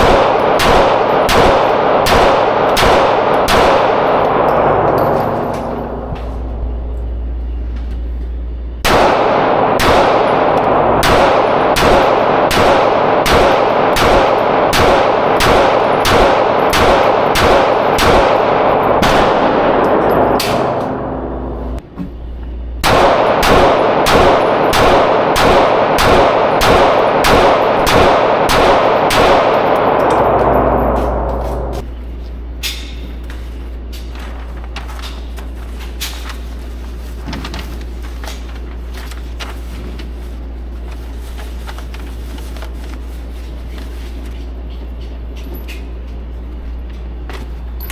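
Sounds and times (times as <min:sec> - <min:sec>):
handgun shots: 0:00.0 - 0:04.6, 0:08.9 - 0:21.2, 0:22.8 - 0:31.8.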